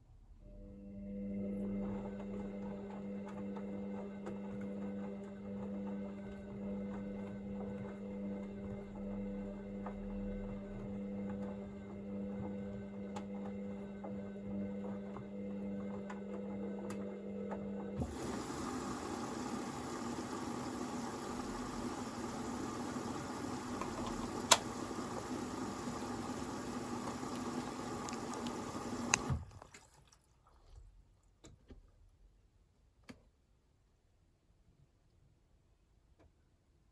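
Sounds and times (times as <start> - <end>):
washing machine hum: 0.5 - 31.2
water rushing in washing machine: 1.4 - 30.7
machine click: 23.8 - 24.8.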